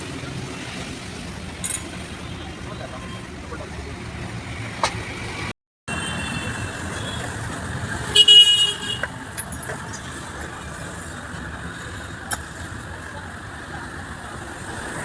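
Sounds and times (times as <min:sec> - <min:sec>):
vehicle horn honk: 0:08.1 - 0:09.0.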